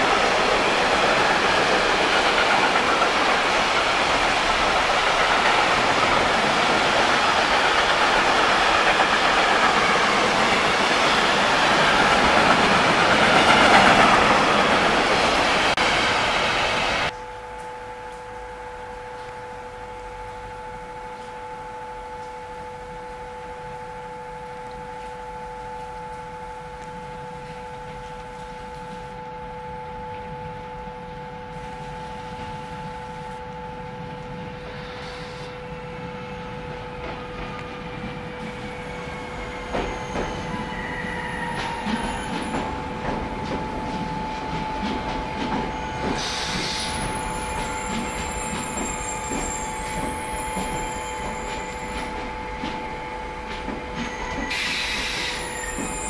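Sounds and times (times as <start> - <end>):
train motor whine: 0.0 - 56.0
brief wheel squeals: 38.4 - 53.0, 53.6 - 56.0.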